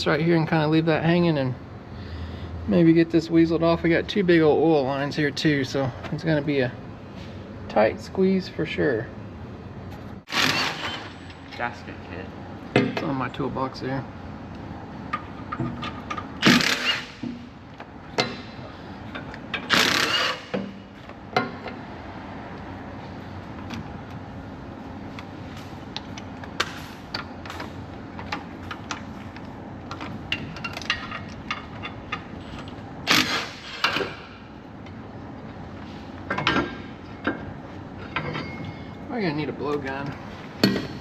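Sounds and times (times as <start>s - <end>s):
tools clinking on metal: 36.3s - 39.0s.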